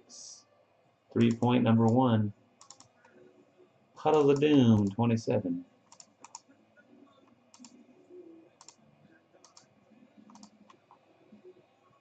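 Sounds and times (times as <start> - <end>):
computer mouse clicks: 1.2 - 2.0, 2.6 - 3.2, 4.1 - 5.0, 5.9 - 6.5, 7.1 - 7.8, 8.6 - 8.8, 9.4 - 11.5.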